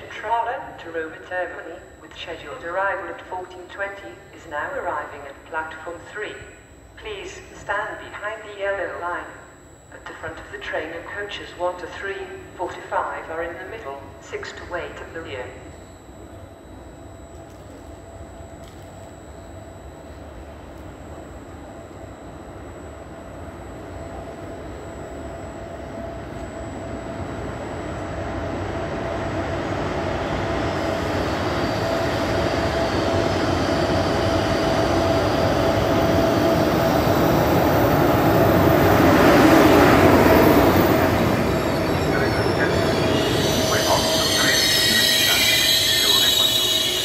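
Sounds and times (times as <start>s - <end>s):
train approaching with whine: 0.0s - 47.0s
wheel and brake squeal: 41.9s - 47.0s.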